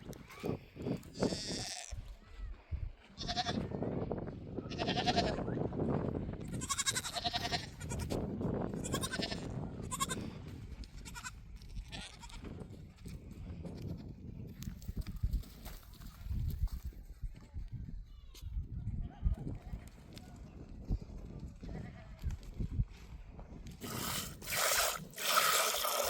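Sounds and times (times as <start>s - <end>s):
flock bleating: 6.5s - 8.1s, 8.8s - 10.2s.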